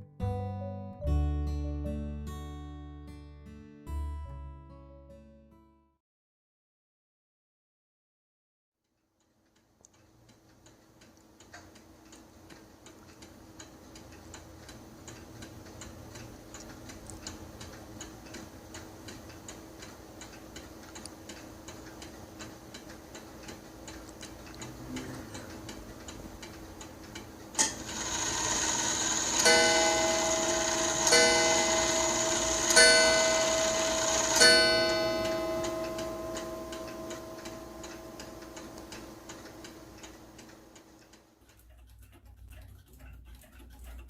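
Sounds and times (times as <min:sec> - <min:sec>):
mantel clock ticking: 0:09.5 - 0:44.0
clock striking ringing tones: 0:27.6 - 0:40.4.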